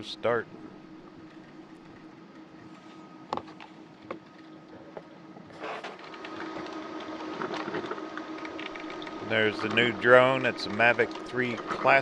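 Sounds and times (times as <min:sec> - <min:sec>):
low steady hum: 0:00.0 - 0:12.0
coffee maker gurgling and hissing: 0:04.7 - 0:12.0.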